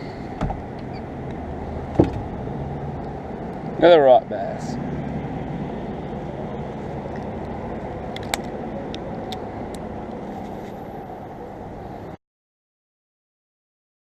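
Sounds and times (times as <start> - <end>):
river water flowing: 2.6 - 10.3.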